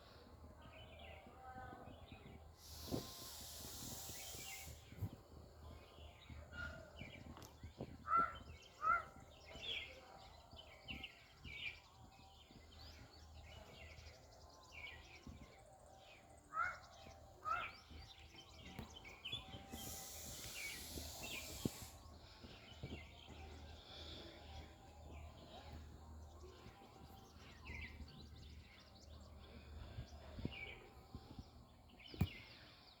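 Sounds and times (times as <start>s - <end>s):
birds chirping: 0.0s - 33.0s
short burst of hiss: 2.6s - 5.1s, 19.7s - 22.0s.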